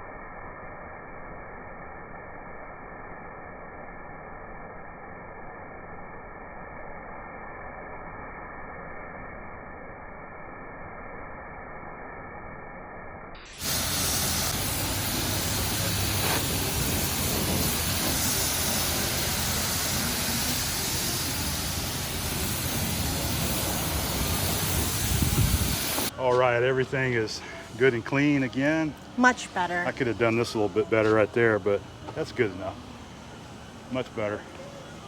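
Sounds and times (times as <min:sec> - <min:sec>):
pressure washer spraying water: 0:13.4 - 0:26.1.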